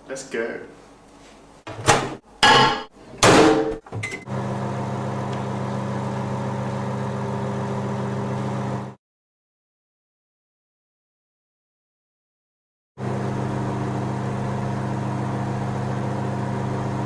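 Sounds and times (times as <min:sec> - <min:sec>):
microwave humming: 0:01.7 - 0:09.0, 0:13.0 - 0:17.0.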